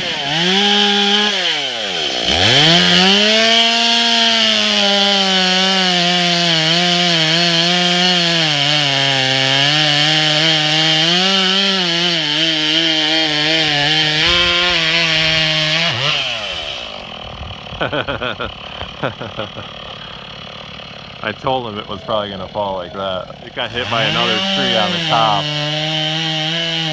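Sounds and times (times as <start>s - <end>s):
chainsaw revving and cutting wood: 0.0s - 26.9s.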